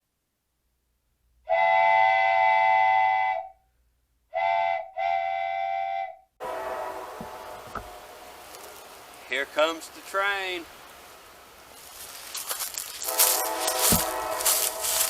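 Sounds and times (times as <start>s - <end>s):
locomotive air horn blasts: 1.5s - 3.6s, 4.3s - 8.7s, 13.0s - 15.0s
outdoor rumble: 6.4s - 9.3s.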